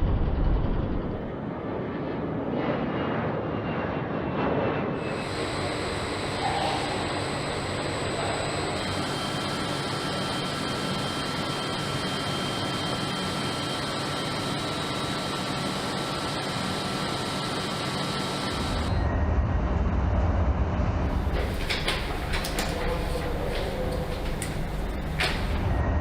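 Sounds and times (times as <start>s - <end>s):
deep engine rumble: 0.0s - 1.3s
faint jet engine whine: 0.0s - 26.0s
jet engines rushing: 0.0s - 26.0s.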